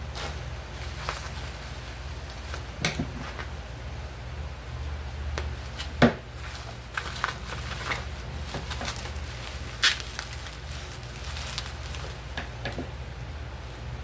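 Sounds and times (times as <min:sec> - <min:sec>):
steady low hum: 0:00.0 - 0:14.0
packaging clicks and crackles: 0:06.9 - 0:12.3.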